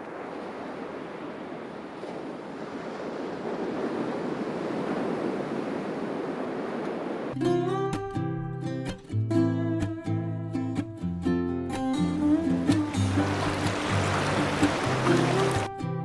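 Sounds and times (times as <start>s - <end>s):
sea surf washing in: 0.0s - 7.9s, 11.7s - 16.0s
acoustic guitar strumming: 7.4s - 16.0s.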